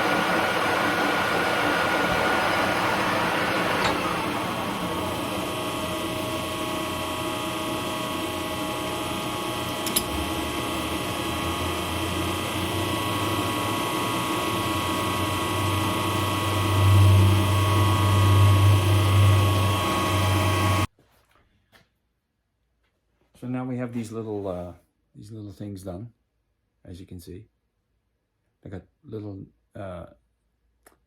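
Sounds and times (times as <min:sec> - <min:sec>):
machine tool gear whine: 0:00.0 - 0:20.9.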